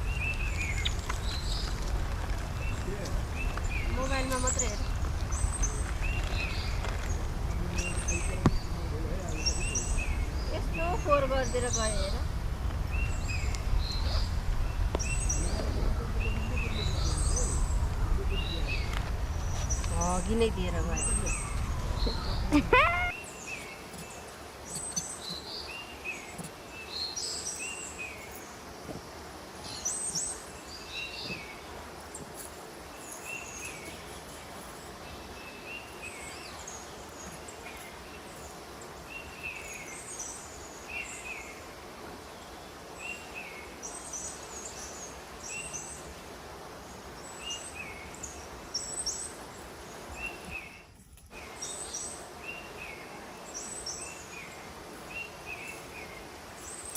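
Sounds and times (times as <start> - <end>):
outdoor background hiss: 0.0 - 56.9
small birds chirping: 0.0 - 56.9.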